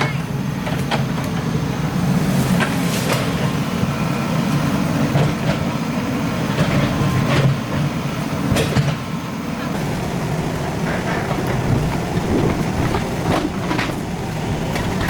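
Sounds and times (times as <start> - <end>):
excavator diesel engine rumbling: 0.0 - 15.0.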